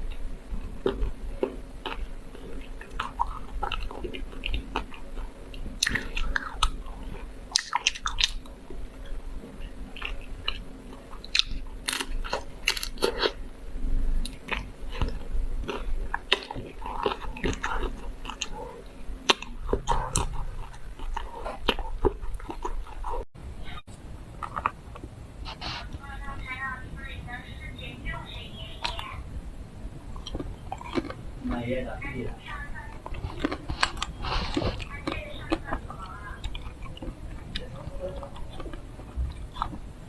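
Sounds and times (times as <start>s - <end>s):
chewing: 0.0s - 23.3s, 24.3s - 26.0s, 30.0s - 40.0s
chocolate shell cracking: 11.4s - 13.1s.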